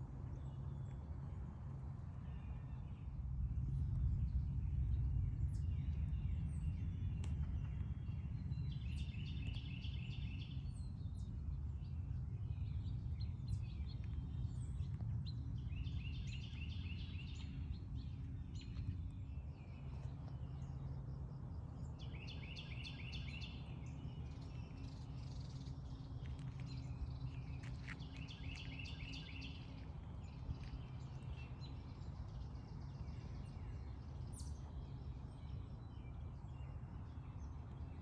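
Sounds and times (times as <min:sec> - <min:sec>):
steady low hum: 0:00.0 - 0:38.0
birds chirping: 0:21.8 - 0:38.0.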